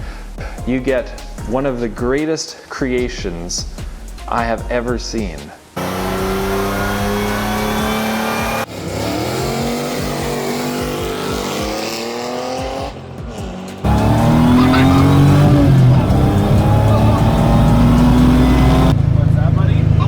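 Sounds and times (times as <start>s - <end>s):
car engine accelerating: 5.8s - 20.0s.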